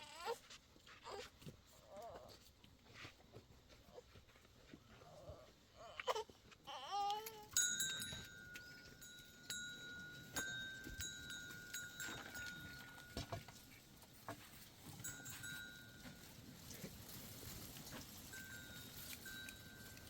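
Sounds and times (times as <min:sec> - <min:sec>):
livestock bells ringing: 0:07.5 - 0:20.0.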